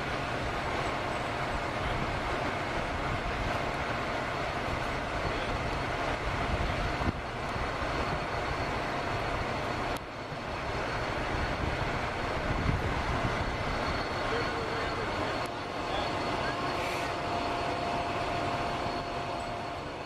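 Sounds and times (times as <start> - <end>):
vehicle engines idling: 0.0 - 20.0.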